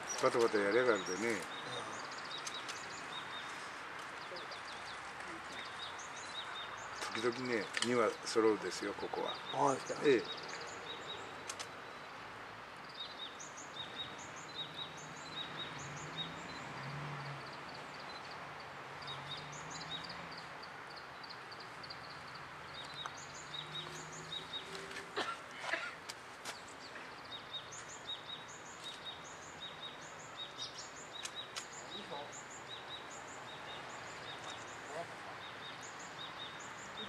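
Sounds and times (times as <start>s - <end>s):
small birds chirping: 0.0s - 37.0s
sharp clicks: 11.4s - 11.8s, 31.2s - 31.8s.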